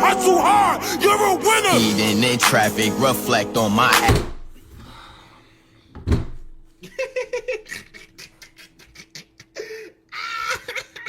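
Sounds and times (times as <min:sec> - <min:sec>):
breathy vocal sound: 0:00.0 - 0:04.1.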